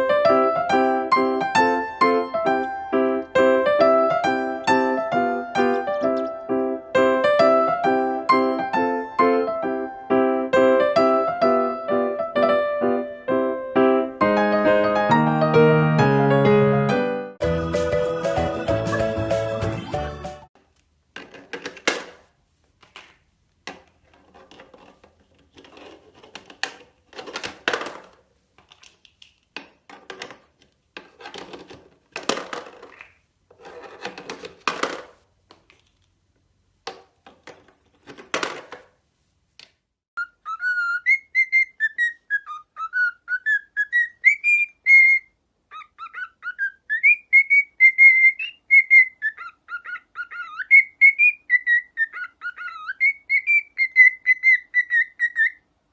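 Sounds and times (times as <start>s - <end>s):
parrot whistling a tune: 18.5s - 19.9s, 40.2s - 55.6s.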